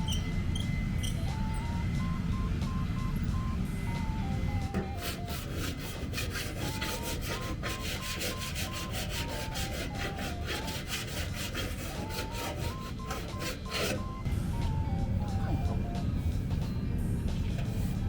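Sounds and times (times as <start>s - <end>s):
file scraping metal panel: 5.0s - 14.1s.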